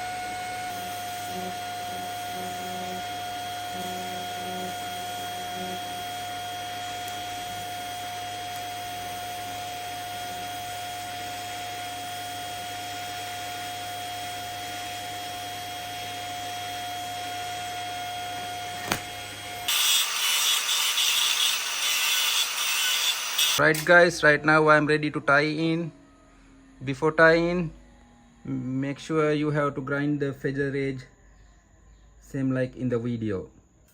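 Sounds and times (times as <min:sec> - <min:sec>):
welding arc buzzing: 0:18.6 - 0:23.8.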